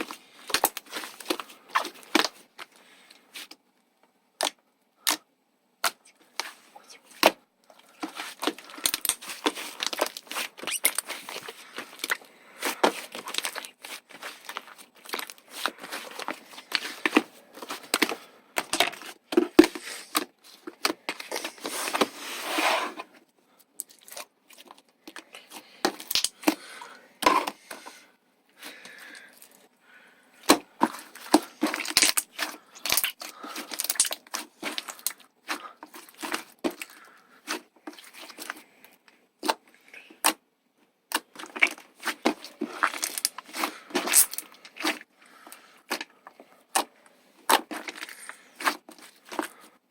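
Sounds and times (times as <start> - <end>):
slime squished and stretched: 5.8 - 22.1, 30.4 - 38.6.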